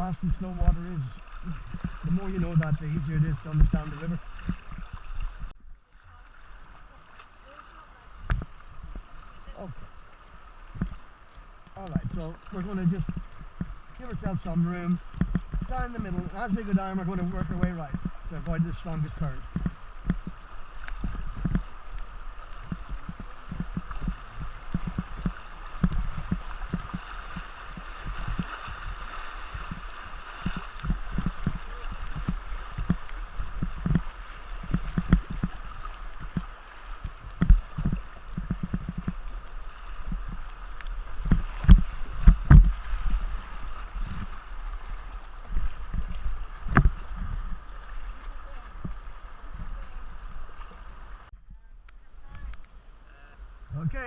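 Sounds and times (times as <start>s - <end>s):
river water rushing: 0.0s - 51.3s
low thuds and knocks: 41.2s - 42.8s.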